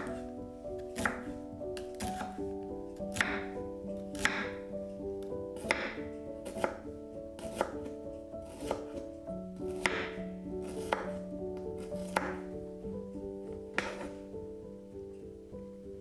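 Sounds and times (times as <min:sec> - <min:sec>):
knife chopping on cutting board: 0:00.0 - 0:00.2, 0:00.8 - 0:02.4, 0:03.1 - 0:04.6, 0:05.6 - 0:06.8, 0:07.4 - 0:09.0, 0:09.7 - 0:11.2, 0:11.8 - 0:12.4, 0:13.8 - 0:14.2
soft piano music: 0:00.0 - 0:16.0.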